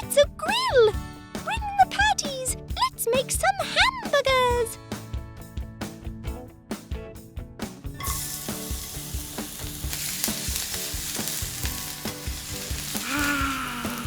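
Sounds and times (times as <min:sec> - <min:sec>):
faint background music: 0:00.0 - 0:14.0
patties sizzling on a grill: 0:08.0 - 0:14.0.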